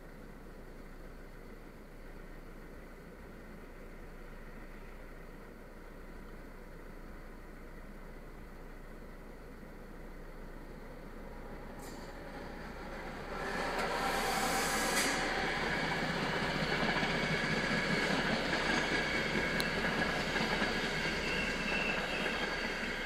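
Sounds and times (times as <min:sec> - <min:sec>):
passenger train rolling past: 0:00.4 - 0:23.0
sharp hiss: 0:13.3 - 0:16.2.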